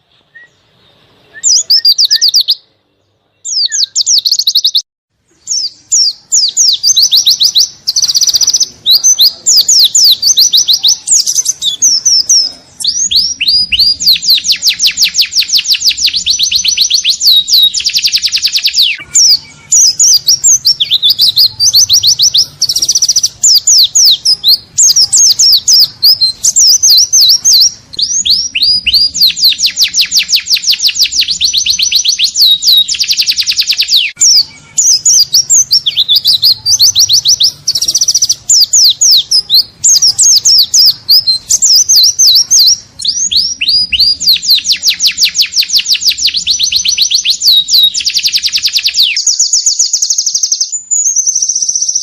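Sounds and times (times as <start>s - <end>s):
white-eye bird singing: 0.0s - 52.0s.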